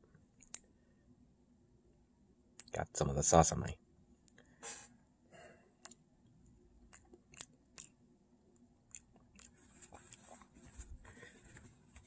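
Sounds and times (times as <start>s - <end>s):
mouth clicks and smacks eating: 0.4s - 0.7s, 2.6s - 2.8s, 5.8s - 6.1s, 6.8s - 8.0s, 8.6s - 10.6s.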